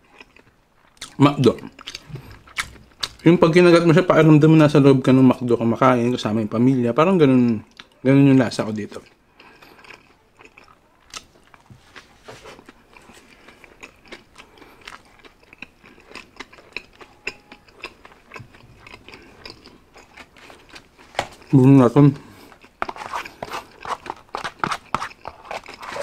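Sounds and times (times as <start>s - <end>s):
chewing a burger: 0.0s - 3.2s, 8.9s - 21.6s, 22.2s - 26.0s
mouth clicks and crunches: 0.0s - 3.2s, 9.0s - 26.0s.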